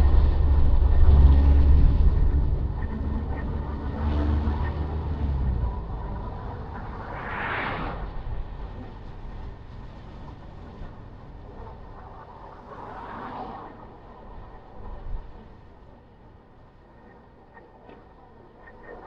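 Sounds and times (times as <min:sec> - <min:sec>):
vehicle passing with hiss: 0:00.0 - 0:08.8, 0:12.5 - 0:13.9
low road rumble: 0:00.0 - 0:19.0.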